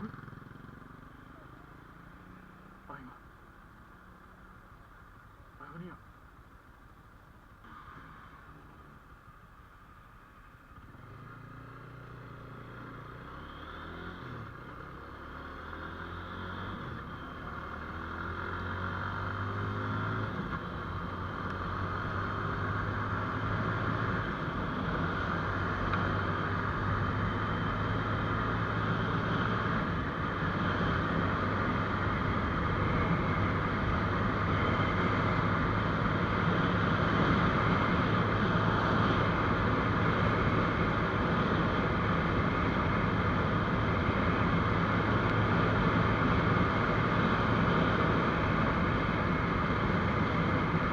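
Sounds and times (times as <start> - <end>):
wind and road noise: 0.0 - 50.9
motorcycle engine accelerating: 10.7 - 50.9.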